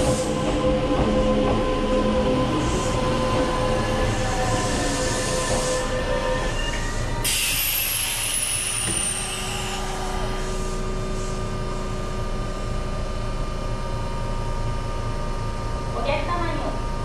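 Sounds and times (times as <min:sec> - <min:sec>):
train electrical hum: 0:00.0 - 0:17.0
air brakes hissing: 0:04.4 - 0:11.5.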